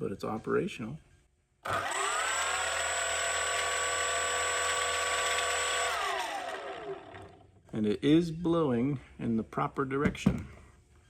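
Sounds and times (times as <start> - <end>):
electric motor and propeller whine: 1.6 - 7.4.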